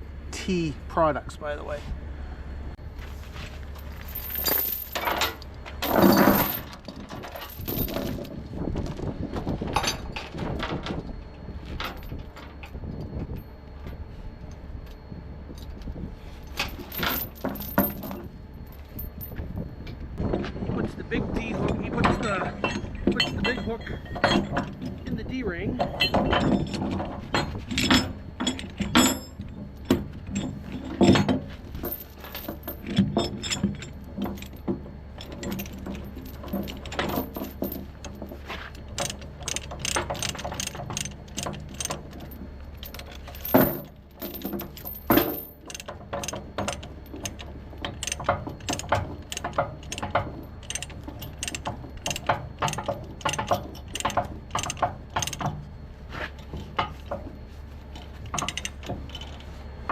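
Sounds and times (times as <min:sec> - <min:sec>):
low hum: 0:00.0 - 0:59.9
chain clinking and rattling: 0:03.4 - 0:20.0, 0:21.5 - 0:59.6
chain binder ratchet clicking: 0:38.9 - 0:55.6, 0:58.0 - 0:59.5.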